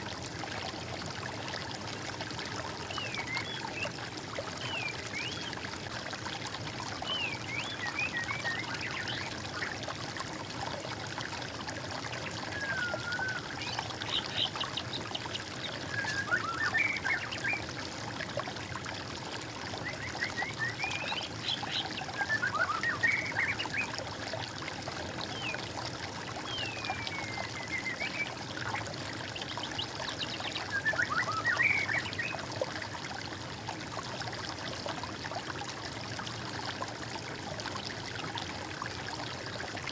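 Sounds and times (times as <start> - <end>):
trickle of flowing water: 0.0 - 39.9
songbirds whistling: 12.5 - 14.6, 15.7 - 17.6, 19.9 - 23.9, 26.5 - 28.3, 30.5 - 32.4.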